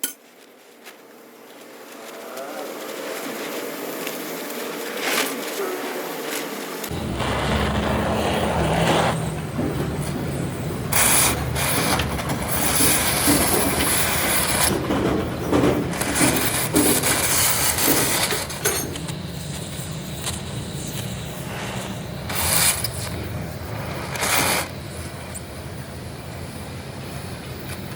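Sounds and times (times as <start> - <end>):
machine motor humming: 1.0 - 27.9
metal scraping and grinding: 6.9 - 19.1.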